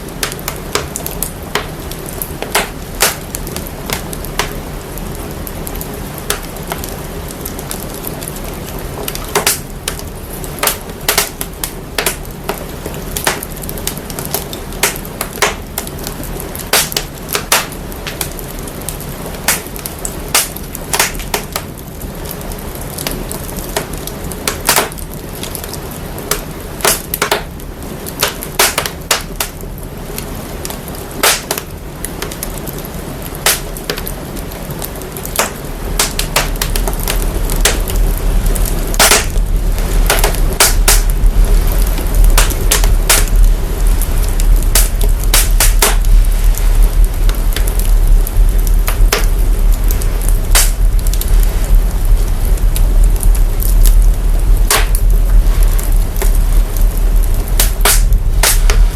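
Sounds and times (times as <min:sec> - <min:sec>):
fire pops and snaps: 0:00.0 - 0:58.9
wood fire crackling: 0:00.0 - 0:58.9
low rumble: 0:36.6 - 0:58.9.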